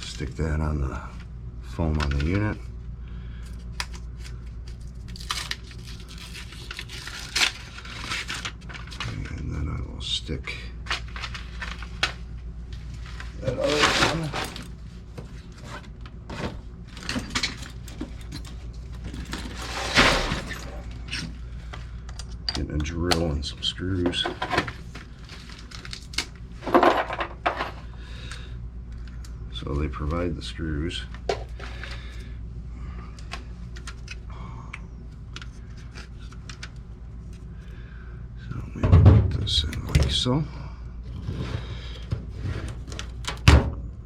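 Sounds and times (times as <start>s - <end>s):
steady low hum: 0.0s - 44.0s
clicks and rustles of tools: 10.8s - 23.4s, 33.1s - 37.5s.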